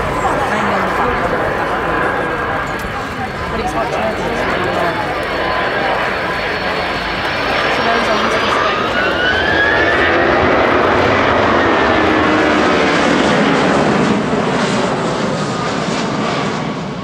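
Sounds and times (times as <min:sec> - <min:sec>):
whining tone gliding in pitch: 0:00.0 - 0:13.6
jet engines roaring: 0:00.0 - 0:17.0.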